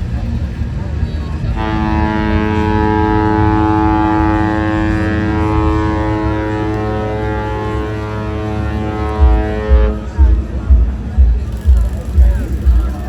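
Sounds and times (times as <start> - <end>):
ship horn blast: 1.5 - 10.6.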